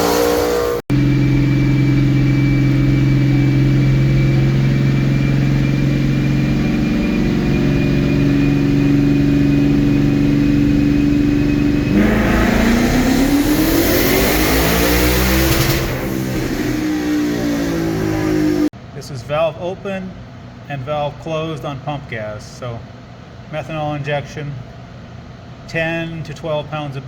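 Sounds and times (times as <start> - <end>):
car engine revving: 0.0 - 18.7
loud rushing hiss: 11.9 - 18.7.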